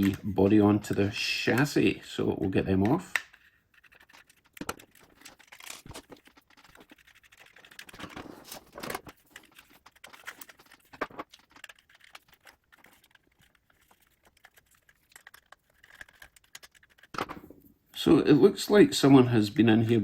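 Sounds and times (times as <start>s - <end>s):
small screwdriver clicking and scraping: 3.1s - 8.2s, 8.9s - 17.2s.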